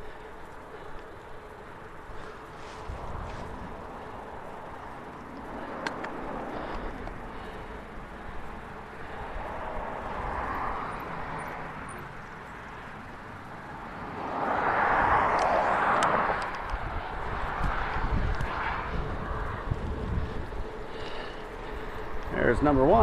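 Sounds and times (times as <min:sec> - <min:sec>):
bicycle tyres rolling: 0:00.0 - 0:23.0
wind rushing: 0:14.0 - 0:21.4.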